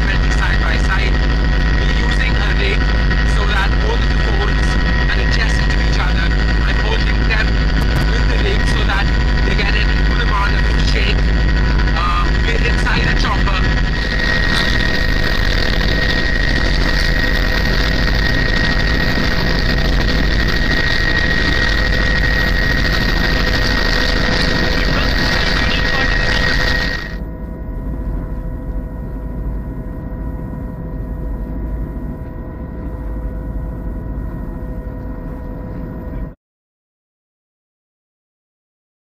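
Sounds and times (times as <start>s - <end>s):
helicopter rotor and engine noise: 0.0s - 36.4s
steady high whine: 0.0s - 36.4s.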